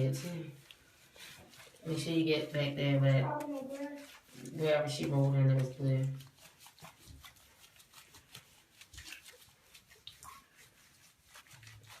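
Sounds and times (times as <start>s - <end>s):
hands rustling in lather: 0.0s - 12.0s.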